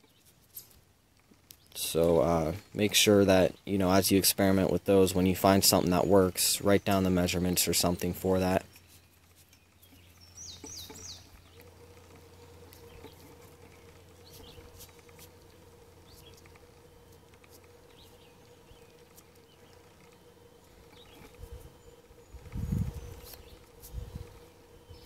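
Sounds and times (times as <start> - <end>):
faint steady hum: 0.0 - 25.0
faint bird chirps: 8.7 - 25.0.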